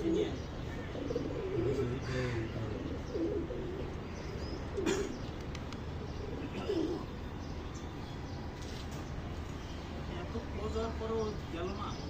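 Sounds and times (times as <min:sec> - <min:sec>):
pigeons cooing: 0:00.0 - 0:07.7.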